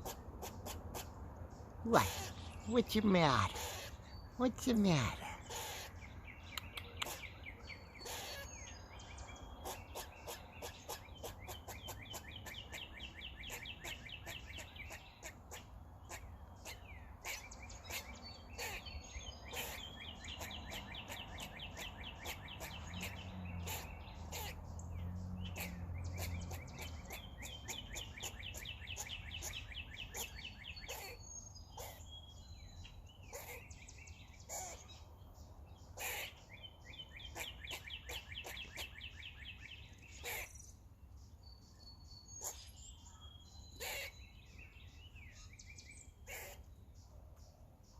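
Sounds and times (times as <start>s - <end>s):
squirrel chattering: 0.0s - 1.1s, 1.9s - 8.4s, 9.6s - 18.9s, 19.5s - 24.6s, 25.5s - 32.1s, 33.3s - 33.8s, 37.3s - 39.0s, 43.8s - 44.2s.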